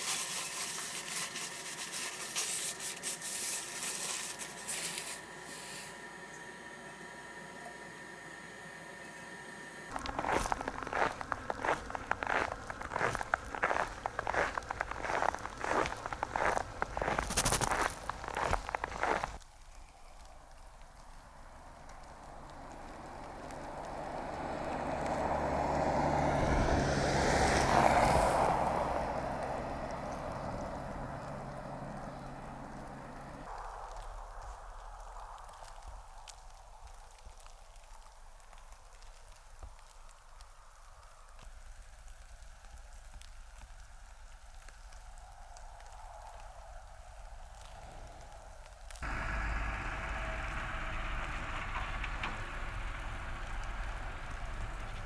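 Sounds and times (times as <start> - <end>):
scratchy rubbing and rustling: 0.0 - 5.9
vehicle passing by: 9.9 - 19.4, 21.6 - 33.4, 49.0 - 55.0.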